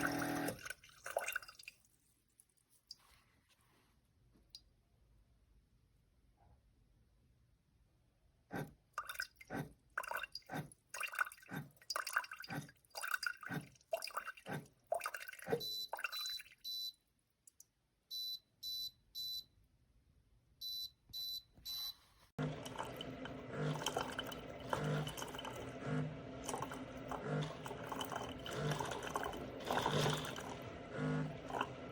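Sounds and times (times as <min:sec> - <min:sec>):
coffee maker beeping: 0:00.0 - 0:00.6, 0:15.5 - 0:16.8, 0:20.6 - 0:31.9
sharp water drips: 0:00.3 - 0:01.8, 0:09.0 - 0:16.8.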